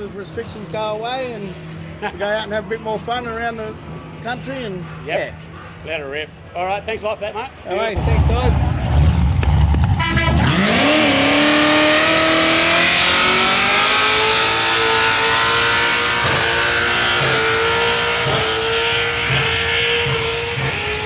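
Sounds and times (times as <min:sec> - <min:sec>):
supercharged engine revving: 0:08.0 - 0:21.0.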